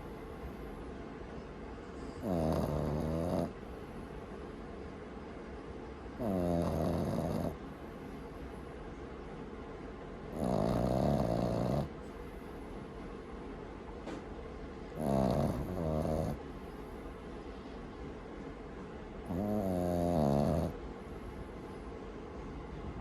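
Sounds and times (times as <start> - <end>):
puppy snoring: 1.9 - 3.6, 6.2 - 7.6, 10.3 - 12.0, 14.9 - 16.4, 19.2 - 20.8.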